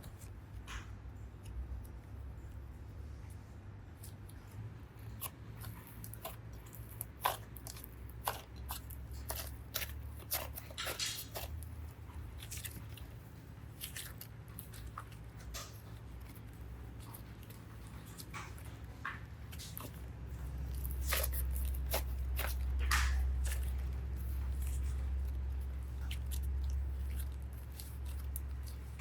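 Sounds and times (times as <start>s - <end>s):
low steady hum: 0.0s - 29.0s
modelling clay crackles and clicks: 0.0s - 29.0s.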